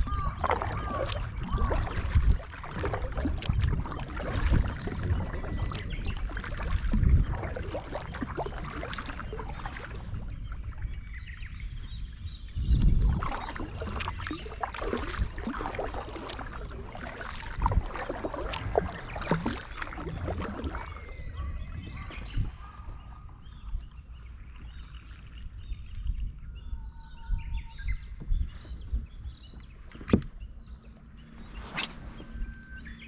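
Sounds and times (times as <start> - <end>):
paddle splashing water: 0.0 - 26.4.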